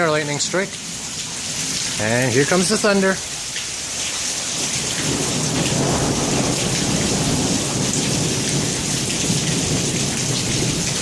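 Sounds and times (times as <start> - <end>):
heavy rain hissing: 0.0 - 11.0
thunder rumbling: 4.8 - 11.0.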